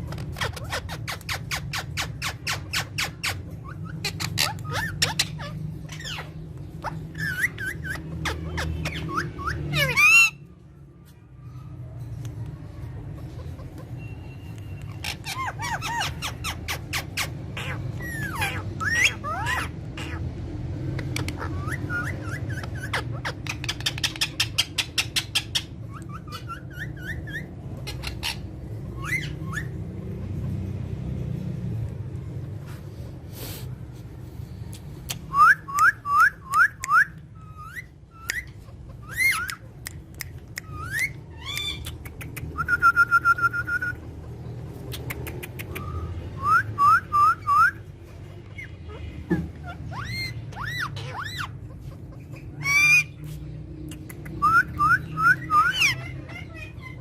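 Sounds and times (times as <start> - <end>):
parrot harsh squawk: 0.3 - 10.5, 14.9 - 20.2, 21.2 - 29.8, 35.3 - 39.7, 48.5 - 53.2, 54.4 - 57.0
parrot chirps and whistles: 0.4 - 10.5, 14.0 - 20.2, 21.3 - 29.8, 35.1 - 44.1, 45.3 - 47.9, 49.6 - 53.2, 54.1 - 57.0.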